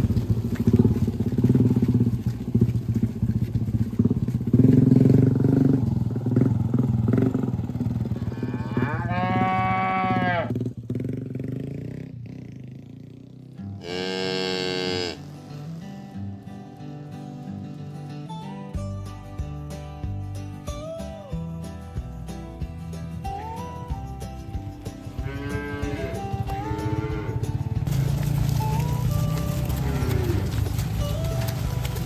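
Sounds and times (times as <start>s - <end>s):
cattle mooing: 8.1s - 10.5s, 13.8s - 15.4s, 25.1s - 32.0s.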